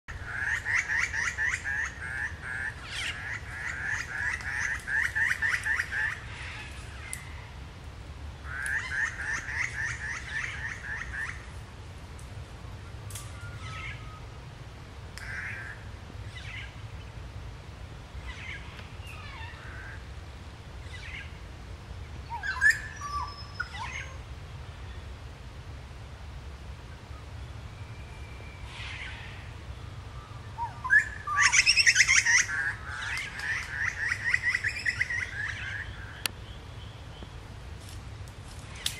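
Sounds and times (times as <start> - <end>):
woodland birds calling: 0.1 - 7.5, 8.4 - 11.5, 12.8 - 14.4, 15.2 - 17.2, 18.2 - 20.2, 20.8 - 21.4, 22.0 - 25.1, 27.0 - 37.5.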